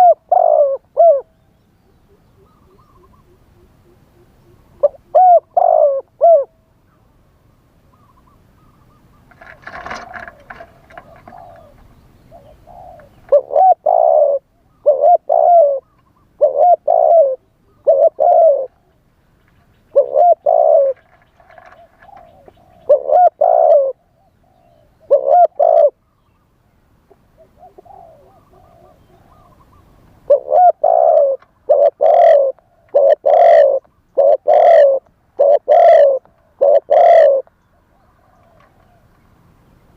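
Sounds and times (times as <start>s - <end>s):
dove cooing: 0.0s - 6.6s, 7.9s - 19.0s, 19.8s - 26.2s, 27.1s - 39.2s
rustling: 9.3s - 12.0s, 20.8s - 22.6s.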